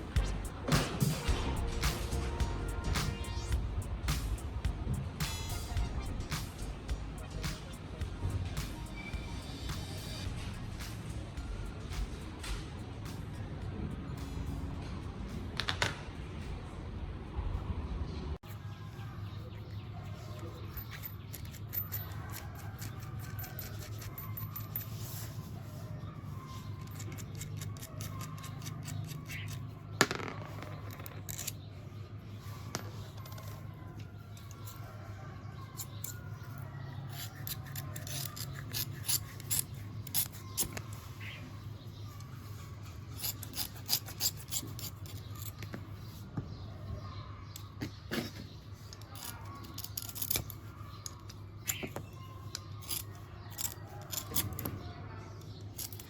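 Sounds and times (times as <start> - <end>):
steady low hum: 0.0 - 18.4
handling and rubbing noises: 18.6 - 56.0.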